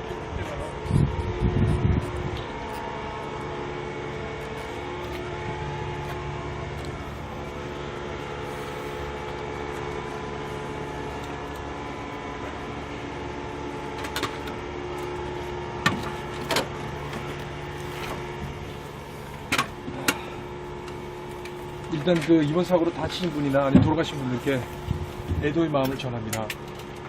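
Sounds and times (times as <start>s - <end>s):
engine drone: 0.0s - 27.0s.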